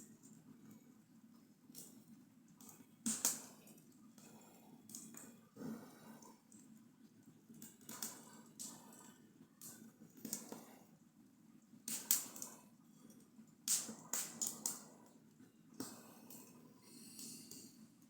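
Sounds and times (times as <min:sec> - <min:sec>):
sharp pops of fire: 0:03.0 - 0:03.5, 0:11.9 - 0:12.5, 0:13.7 - 0:14.8
wood fire crackling: 0:11.9 - 0:12.6, 0:13.6 - 0:14.9.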